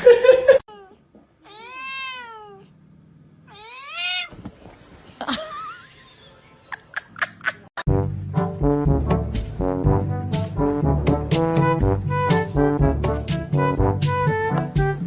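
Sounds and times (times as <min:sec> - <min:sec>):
cat meowing: 0:00.7 - 0:02.7, 0:03.5 - 0:04.4.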